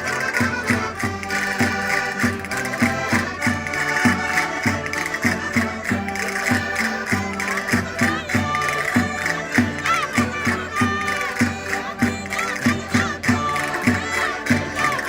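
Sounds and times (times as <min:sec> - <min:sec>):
concertinas playing folk tune: 0:00.0 - 0:15.0.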